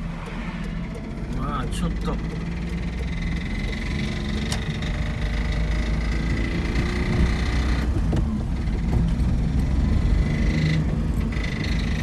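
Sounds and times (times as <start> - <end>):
car engine rattling: 0.0 - 12.0.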